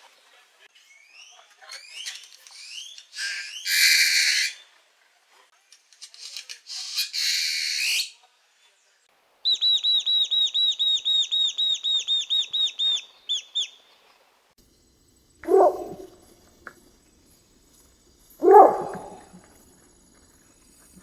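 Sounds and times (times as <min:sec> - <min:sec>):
grackle harsh hissing rasp: 0:02.6 - 0:04.6.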